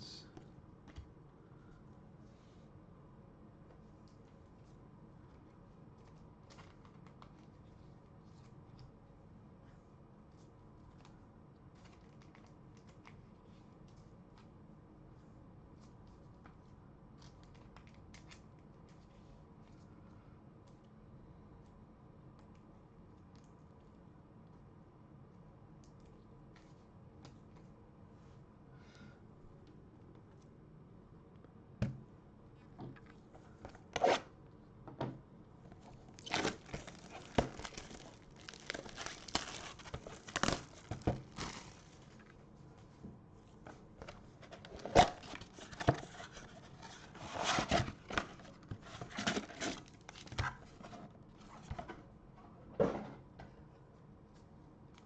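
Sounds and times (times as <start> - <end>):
wrappers tearing and crinkling: 36.1 - 42.2.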